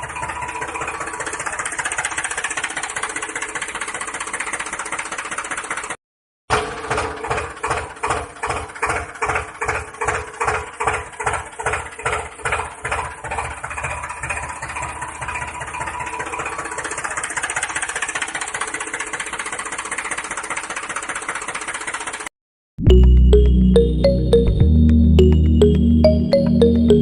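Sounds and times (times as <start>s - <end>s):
small engine thumping: 6.5s - 22.3s.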